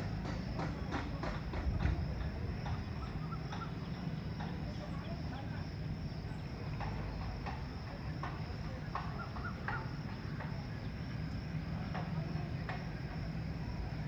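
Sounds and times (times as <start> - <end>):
low mechanical rumble: 0.0 - 14.0
birds chirping: 2.6 - 11.1.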